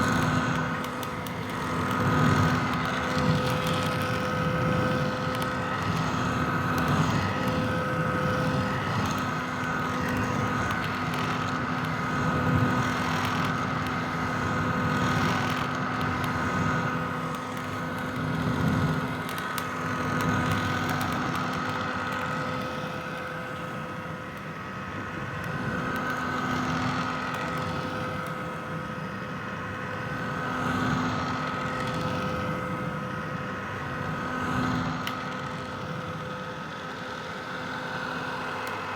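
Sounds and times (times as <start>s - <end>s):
hair dryer running: 31.3s - 38.9s.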